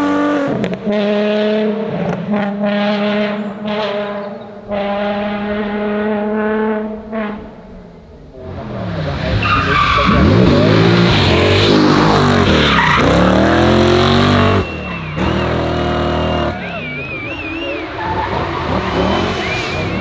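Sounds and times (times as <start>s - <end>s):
race car engine revving: 0.0s - 20.0s
tyre squeals: 8.6s - 20.0s.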